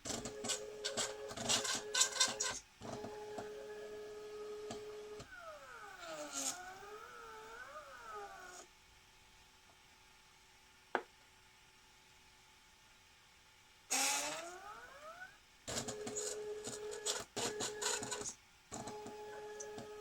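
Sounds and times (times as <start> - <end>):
stepper motors whining: 5.0 - 8.6.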